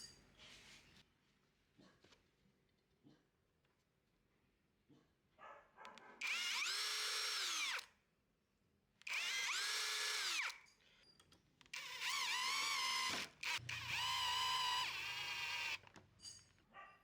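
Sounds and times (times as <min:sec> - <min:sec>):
power drill whining: 0:06.2 - 0:07.9, 0:09.0 - 0:10.6, 0:11.7 - 0:16.0.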